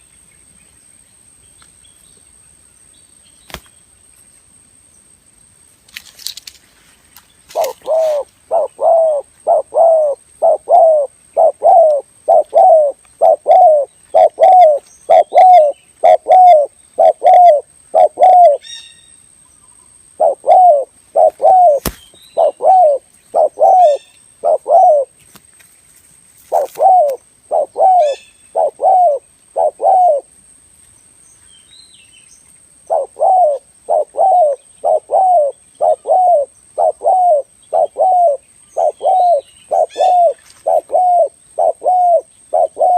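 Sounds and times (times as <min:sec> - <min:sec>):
dove cooing: 0:07.5 - 0:18.6, 0:20.2 - 0:25.2, 0:26.5 - 0:30.3, 0:32.9 - 0:42.9.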